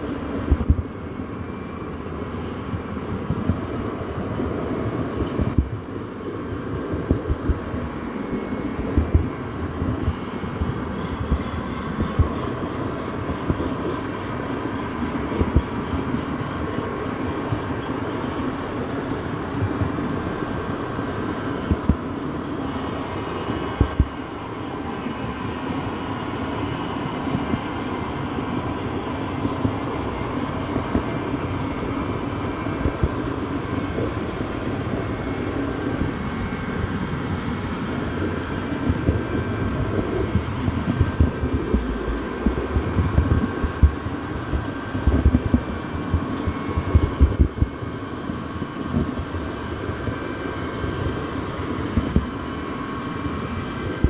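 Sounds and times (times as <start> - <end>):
thin whine: 0.0 - 54.0
train running rumble and rattle: 0.0 - 54.0
low knocks and thumps: 40.3 - 46.3.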